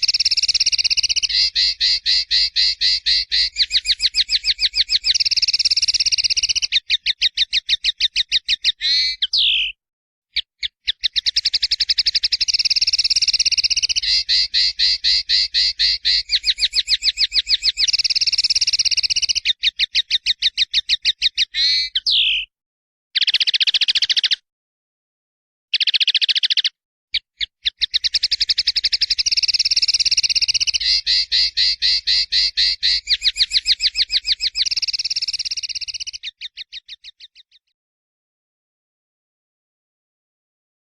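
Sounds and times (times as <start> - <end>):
songbird trilling: 0.0 - 9.8, 10.6 - 22.5, 23.2 - 24.4, 25.8 - 37.6.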